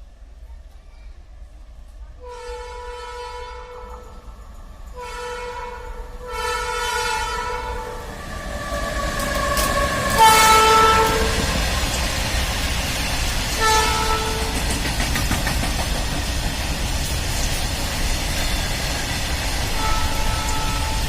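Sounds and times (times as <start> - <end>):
train rumble: 0.0 - 21.0
locomotive horn blasts: 2.2 - 4.2, 5.0 - 8.0, 10.0 - 11.5, 13.6 - 14.6, 19.8 - 21.0.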